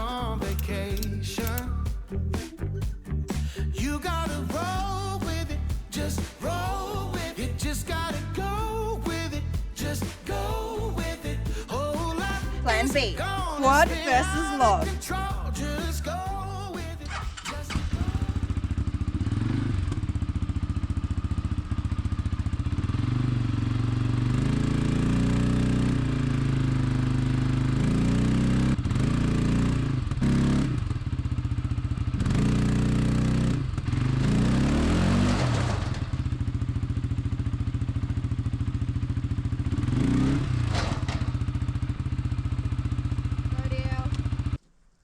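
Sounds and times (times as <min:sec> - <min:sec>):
vehicle engine revving: 0:32.2 - 0:36.6, 0:39.6 - 0:42.1.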